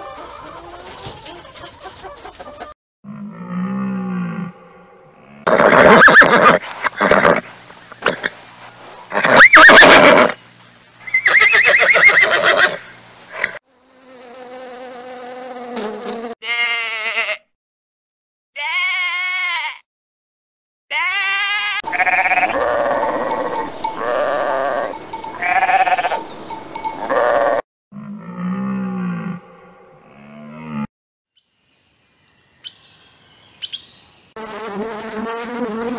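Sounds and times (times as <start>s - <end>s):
horse whinnying: 5.4s - 7.4s, 9.1s - 10.4s, 11.1s - 13.6s
lamb bleating: 16.4s - 17.5s, 18.6s - 19.8s, 20.9s - 23.4s, 24.0s - 26.2s, 27.1s - 27.6s
young ibex bleating: 16.4s - 17.5s, 18.6s - 19.8s, 20.9s - 26.2s, 27.1s - 27.6s.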